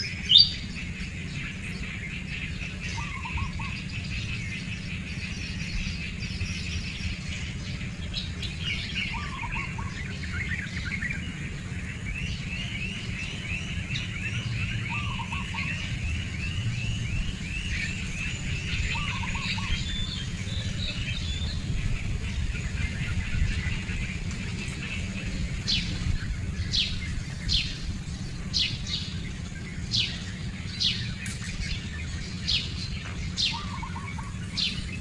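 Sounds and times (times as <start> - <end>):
birds chirping and calling: 0.0 - 35.0
steady low rumble: 0.0 - 35.0.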